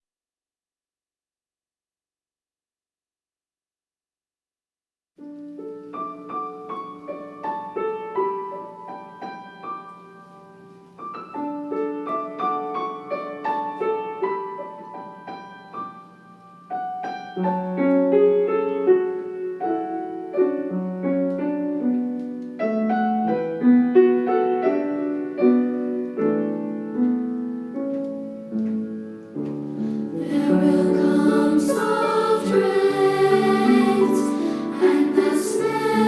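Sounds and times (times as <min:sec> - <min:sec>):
gentle piano: 0:05.2 - 0:36.0
treble choir singing: 0:29.9 - 0:36.0.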